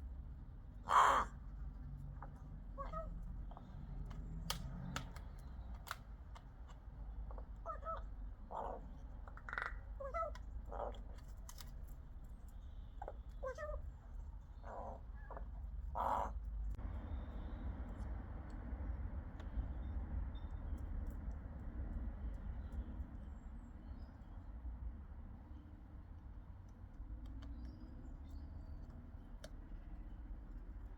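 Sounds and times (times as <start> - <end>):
rook calling: 0.8 - 1.4, 7.3 - 11.2, 14.6 - 16.4.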